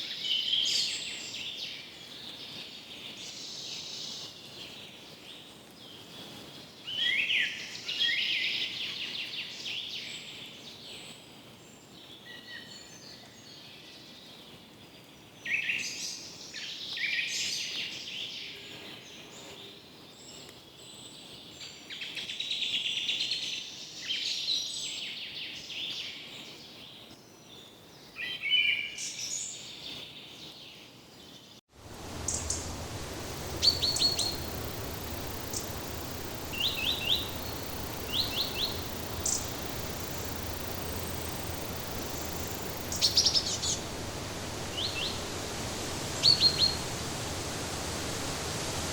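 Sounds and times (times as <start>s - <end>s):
forest ambience hiss: 0.0s - 48.9s
low rumble: 31.8s - 48.9s
birds singing and calling: 32.2s - 47.9s.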